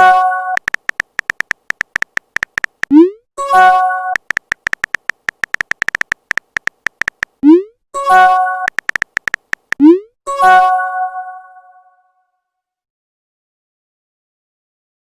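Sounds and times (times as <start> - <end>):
keyboard tap clicks: 0.6 - 3.0, 4.2 - 7.4, 8.7 - 9.9.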